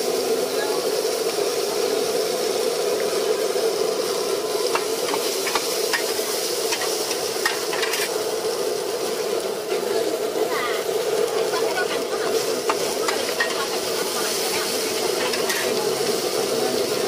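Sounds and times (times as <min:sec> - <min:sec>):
food sizzling on a griddle: 0:00.0 - 0:17.0
metal spatulas scraping: 0:06.7 - 0:08.1.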